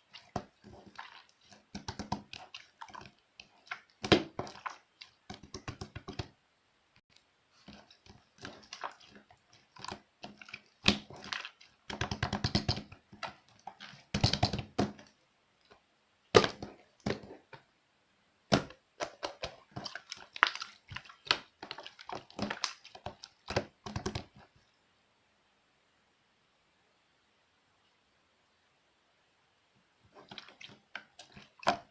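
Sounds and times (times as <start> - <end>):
slime squished by hand: 18.5 - 24.4.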